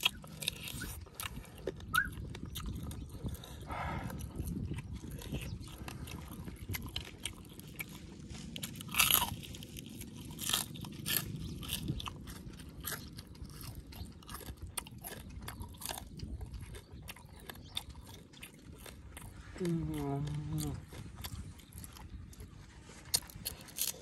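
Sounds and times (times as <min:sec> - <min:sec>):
crunching: 0:00.0 - 0:24.0
person chewing with wet smacking: 0:00.0 - 0:24.0.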